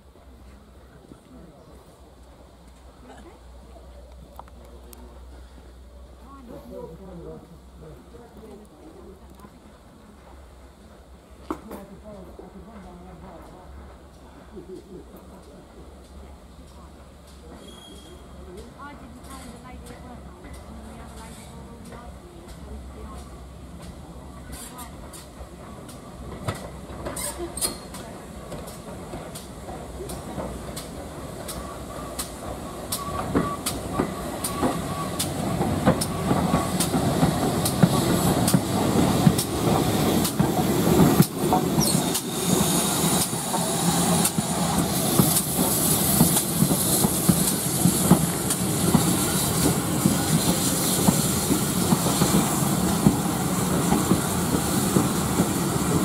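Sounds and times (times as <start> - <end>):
train wheels clicking over rail joints: 18.6 - 56.0.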